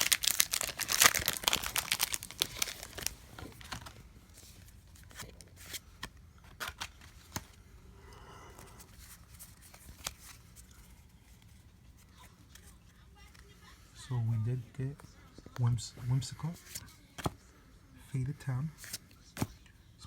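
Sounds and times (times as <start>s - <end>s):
trading cards clicking and rustling: 0.0s - 4.0s, 4.6s - 7.6s
wrapper crinkling: 0.0s - 4.0s.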